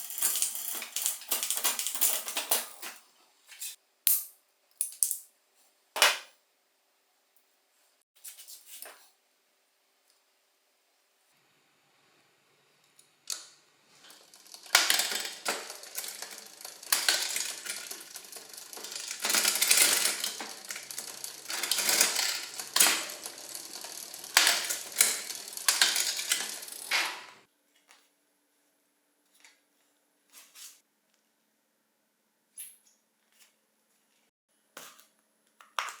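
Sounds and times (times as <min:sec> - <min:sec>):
metallic clicking and rattling of tools: 0:00.0 - 0:03.0, 0:14.0 - 0:27.4.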